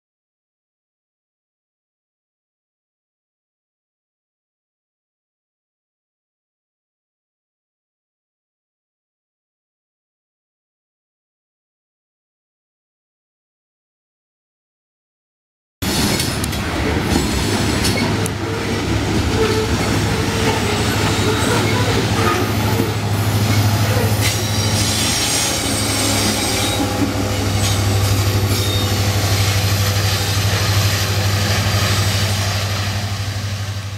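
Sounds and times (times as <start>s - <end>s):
diesel locomotive engine drone: 15.8s - 33.9s
steel wheels clattering on rail: 15.8s - 33.9s.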